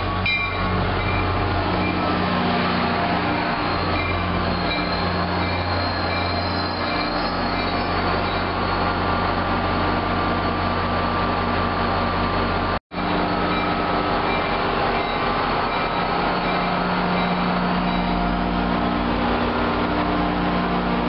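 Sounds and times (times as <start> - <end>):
high wheel squeal: 0.0 - 9.0, 13.1 - 18.4
diesel locomotive engine drone: 0.0 - 21.0
rolling wheel and rail noise: 0.0 - 21.0.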